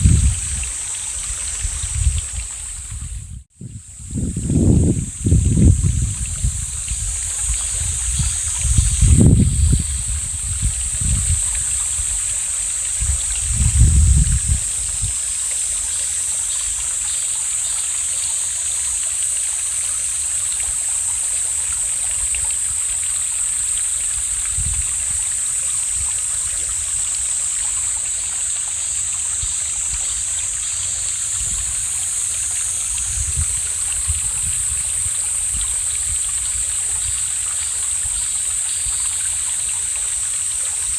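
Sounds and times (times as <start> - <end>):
wind buffeting microphone: 0.0 - 15.3, 24.2 - 27.0, 29.4 - 39.2
mountain stream flowing: 4.6 - 40.9.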